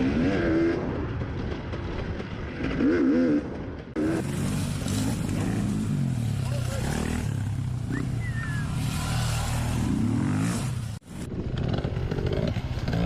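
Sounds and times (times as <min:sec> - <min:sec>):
dirt bike engine revving: 0:02.6 - 0:13.0.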